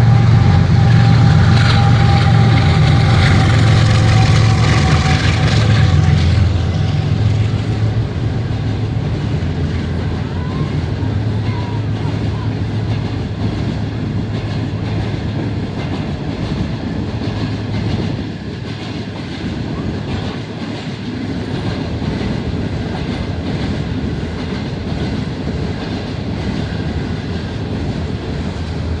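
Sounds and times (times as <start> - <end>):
low hum: 0.0 - 14.5
train wheels rolling past: 0.0 - 29.0.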